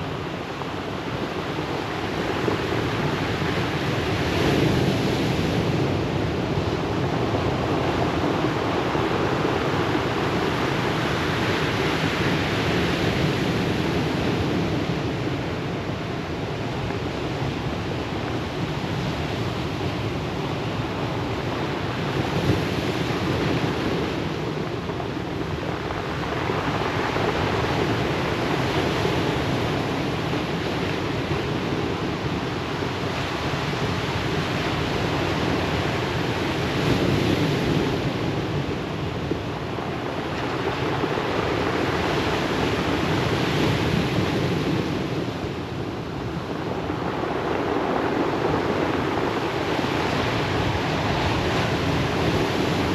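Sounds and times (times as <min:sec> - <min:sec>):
ocean surf breaking: 0:18.7 - 0:52.9.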